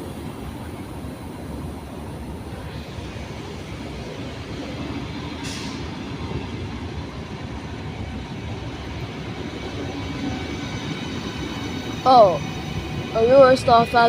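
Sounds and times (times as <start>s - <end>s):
train rumbling on track: 0.0s - 14.0s
short hiss: 5.4s - 5.8s.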